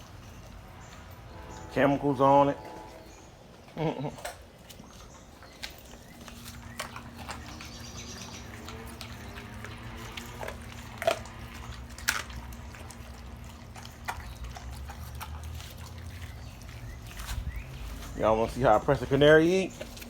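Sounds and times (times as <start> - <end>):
low hum: 0.0 - 4.2
dogs chewing wetly: 0.0 - 20.0.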